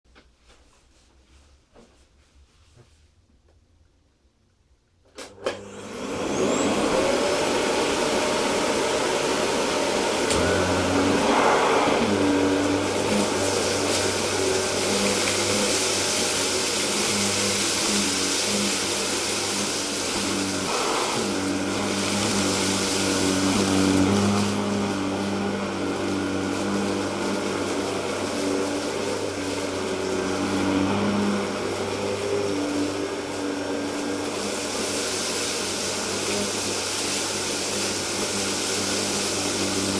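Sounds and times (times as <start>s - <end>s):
vacuum cleaner running on carpet: 5.4s - 39.9s.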